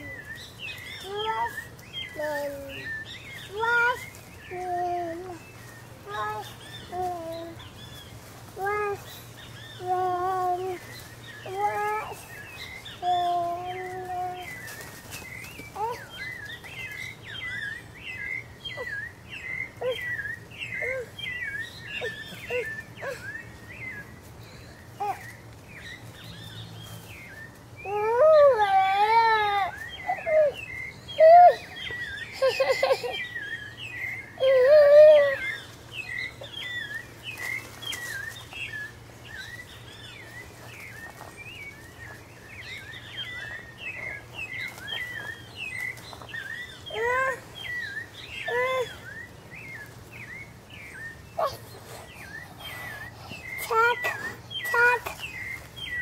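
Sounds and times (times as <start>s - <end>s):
birds chirping: 0.0s - 56.0s
toddler calling out: 11.4s - 12.2s, 27.8s - 30.6s, 46.8s - 47.6s, 48.4s - 49.1s, 53.6s - 55.2s.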